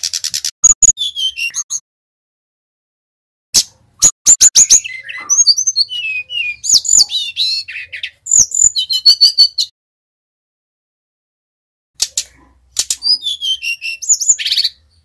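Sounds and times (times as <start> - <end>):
bird singing chips and whistles: 0.0 - 1.8, 3.6 - 9.7, 12.8 - 14.8.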